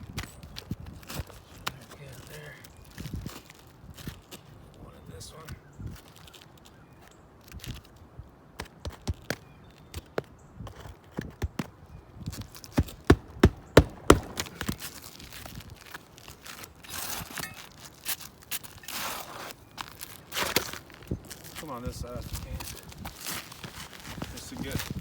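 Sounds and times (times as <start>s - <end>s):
shingles scraping and rustling: 12.3s - 25.0s
hammer driving nails: 12.8s - 14.8s.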